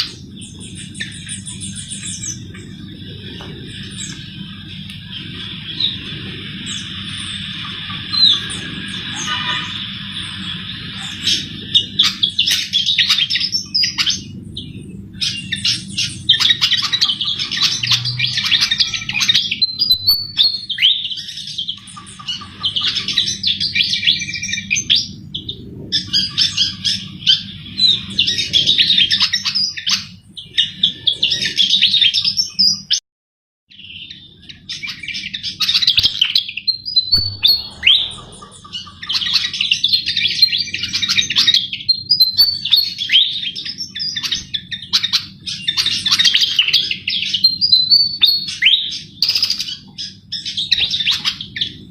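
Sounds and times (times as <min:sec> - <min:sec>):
steady low hum: 0:00.0 - 0:32.3, 0:34.1 - 0:42.0
bird twittering song: 0:00.0 - 0:33.0, 0:33.7 - 0:51.9.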